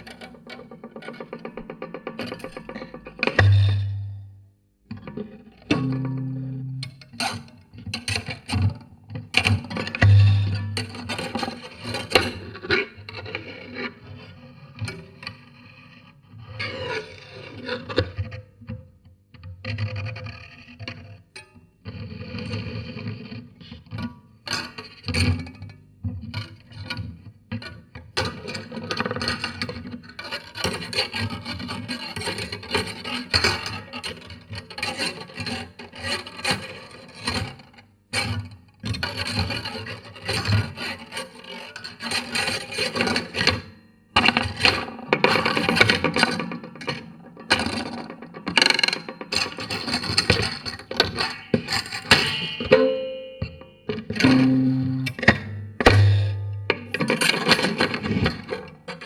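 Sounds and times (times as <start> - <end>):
ringing pitched tones: 52.2 - 56.8.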